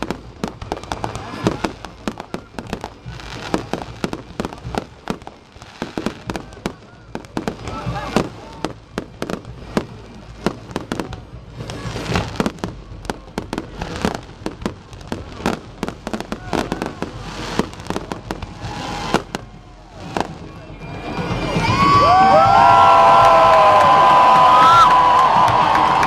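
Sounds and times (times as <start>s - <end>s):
fireworks bangs and crackles: 0.0s - 26.0s
crowd cheering and whooping: 17.8s - 26.0s.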